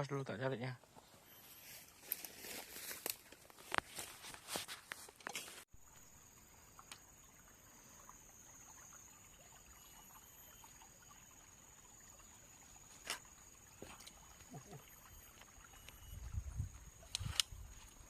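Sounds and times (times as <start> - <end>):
thin high whine: 1.1 - 2.2
sharp click: 17.1 - 17.5.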